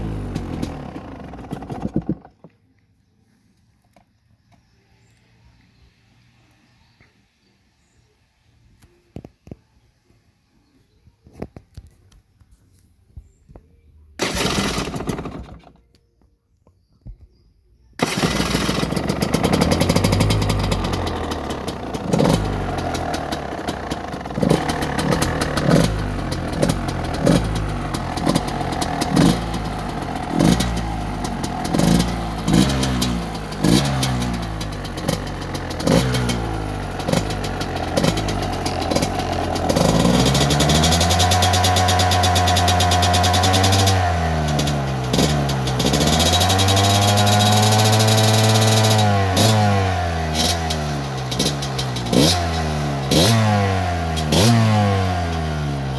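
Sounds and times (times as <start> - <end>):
electric starter cranking: 0.0 - 2.4, 14.2 - 15.8, 18.0 - 55.6
two-stroke engine revving and idling: 0.0 - 2.6, 14.2 - 15.8, 18.0 - 55.9.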